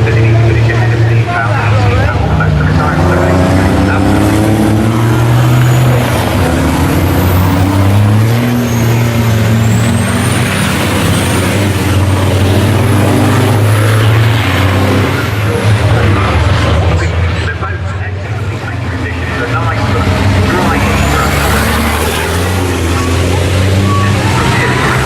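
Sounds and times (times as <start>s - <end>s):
truck diesel engines running hard: 0.0s - 25.0s.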